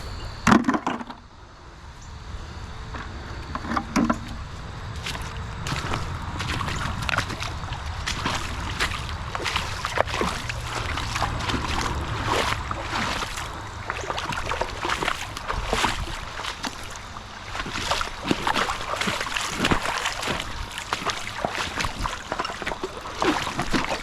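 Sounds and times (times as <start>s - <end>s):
water splashing and sloshing: 2.9s - 24.0s
stream trickling: 4.9s - 24.0s.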